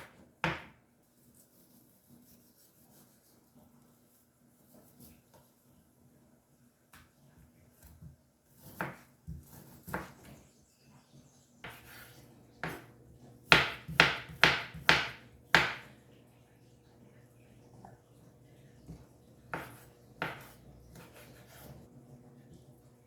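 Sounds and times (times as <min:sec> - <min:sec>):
knife chopping on cutting board: 0:00.0 - 0:00.8, 0:07.8 - 0:10.4, 0:11.6 - 0:15.9, 0:19.5 - 0:21.8.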